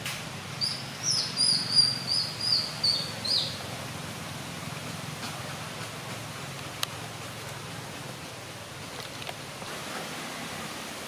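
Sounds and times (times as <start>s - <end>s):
songbird calling high notes: 0.6s - 3.6s.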